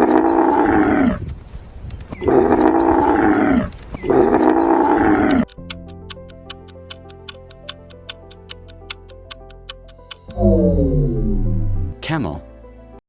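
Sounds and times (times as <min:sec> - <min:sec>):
camel calling: 0:00.0 - 0:01.3, 0:02.1 - 0:05.5.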